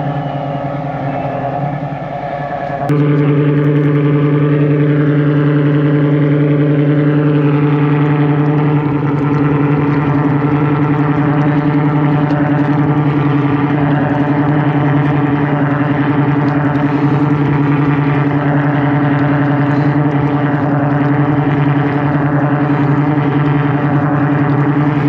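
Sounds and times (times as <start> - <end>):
drain jetter engine drone: 0.0 - 25.0
water jetting through pipe: 6.6 - 25.0.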